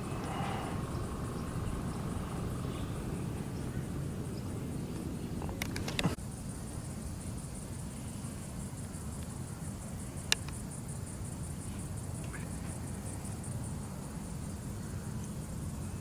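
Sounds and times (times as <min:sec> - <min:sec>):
low rumble: 0:00.0 - 0:06.2
insects trilling: 0:00.0 - 0:16.0.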